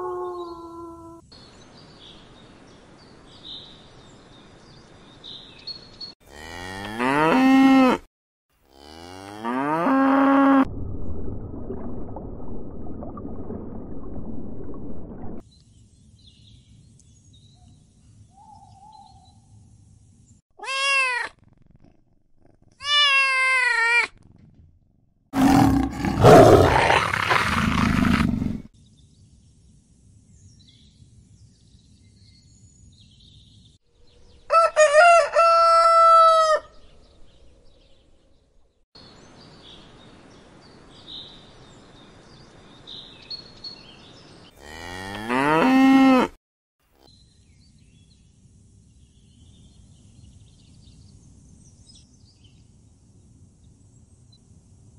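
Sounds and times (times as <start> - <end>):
short pitched animal cries: 20.6 - 21.4
loud rough animal roar: 25.4 - 28.6.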